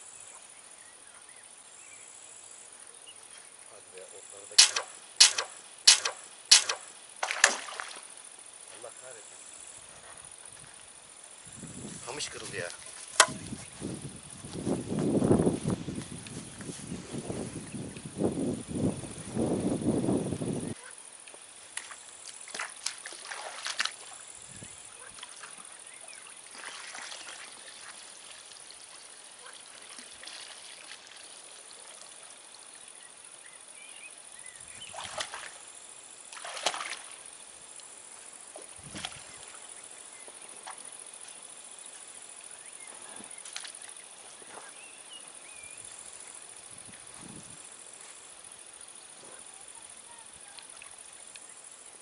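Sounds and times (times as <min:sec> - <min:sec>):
water splashing and sloshing: 0:04.6 - 0:08.4, 0:21.3 - 0:33.0, 0:34.9 - 0:37.4, 0:38.4 - 0:39.7.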